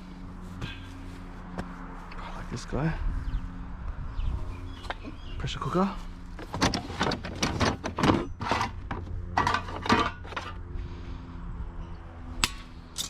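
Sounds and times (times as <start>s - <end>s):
metal cookware clattering: 9.4s - 10.5s.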